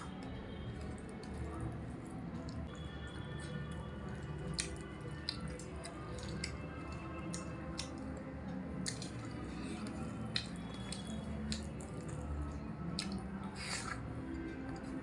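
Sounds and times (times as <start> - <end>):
person chewing: 2.5 - 8.1, 8.8 - 15.0.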